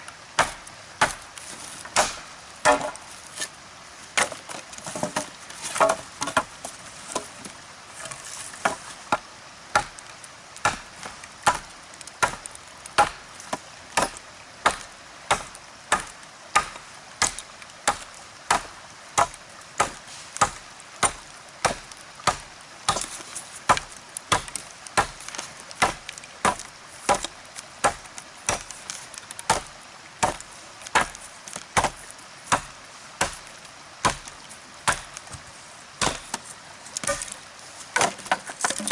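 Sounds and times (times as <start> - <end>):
axe chopping wood: 0.4 - 1.2, 1.9 - 3.0, 4.2 - 6.5, 8.6 - 10.0, 10.6 - 28.7, 29.5 - 31.2, 31.8 - 35.4, 36.0 - 36.4, 37.0 - 37.3, 38.0 - 38.9.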